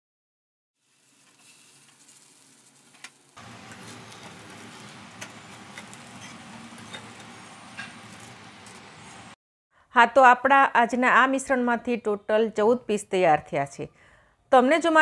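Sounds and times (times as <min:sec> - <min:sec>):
food frying in oil: 0:00.8 - 0:09.4.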